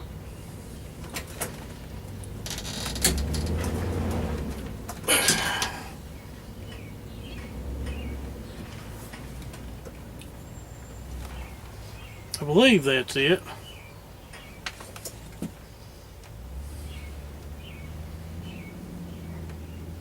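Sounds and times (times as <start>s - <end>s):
scraping rustle: 0.5s - 5.8s.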